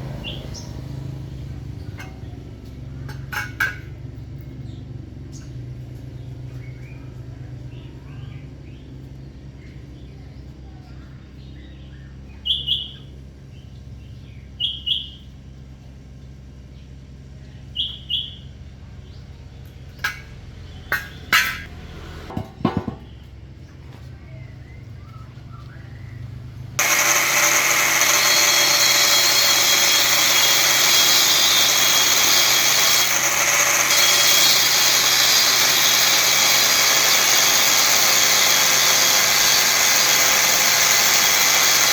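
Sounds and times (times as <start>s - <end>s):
loud steady machine noise: 26.8s - 41.9s.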